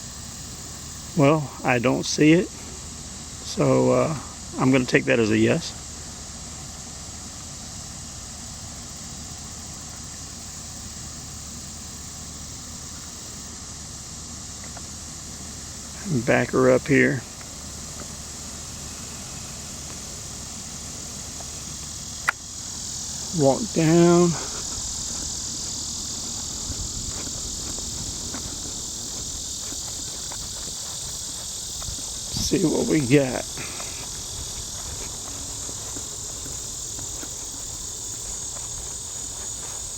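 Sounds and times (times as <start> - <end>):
background hiss: 0.0 - 39.9
high-pitched insect chorus: 0.0 - 39.9
low hum: 17.2 - 39.9.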